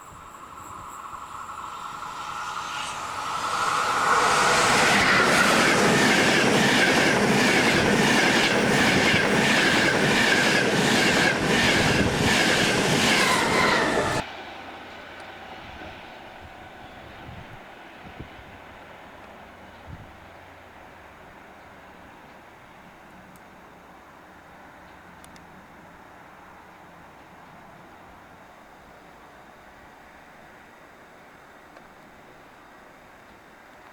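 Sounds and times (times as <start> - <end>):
train wheels clacking: 0.0 - 14.2
train passing at speed: 0.0 - 22.9.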